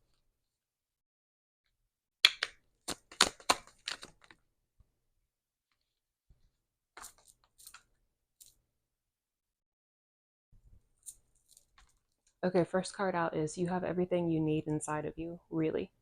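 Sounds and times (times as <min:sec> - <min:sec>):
cards shuffling: 0:02.3 - 0:04.4, 0:07.0 - 0:08.6.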